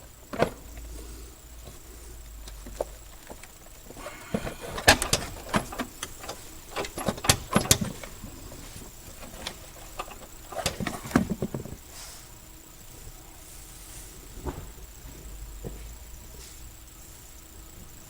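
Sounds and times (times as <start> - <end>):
tools and parts clicking and knocking: 2.4 - 11.7.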